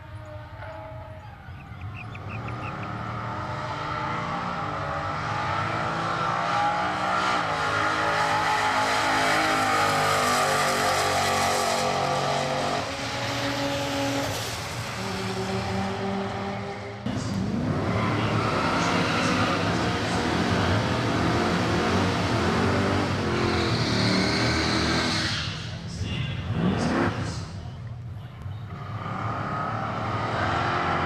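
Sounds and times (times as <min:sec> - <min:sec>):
drag car engine at full throttle: 0:02.5 - 0:27.6, 0:28.7 - 0:31.0.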